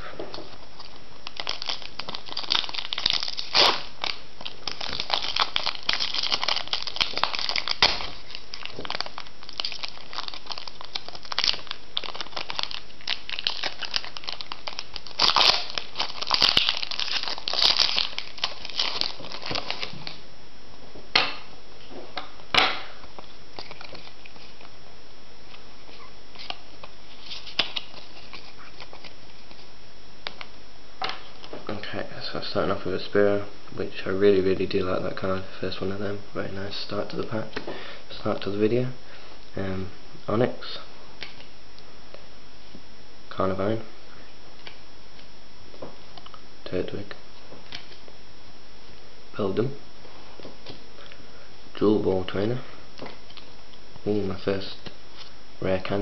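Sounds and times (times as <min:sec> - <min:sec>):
foil wrapper crinkling and tearing: 0:00.4 - 0:20.2, 0:23.1 - 0:24.7, 0:25.9 - 0:30.4.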